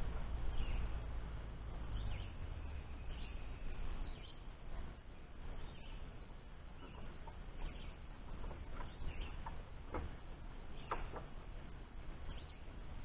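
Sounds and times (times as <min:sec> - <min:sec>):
steady low rumble: 0:00.0 - 0:13.0
faint bird chirps: 0:01.9 - 0:04.5, 0:06.8 - 0:08.1, 0:12.2 - 0:12.8.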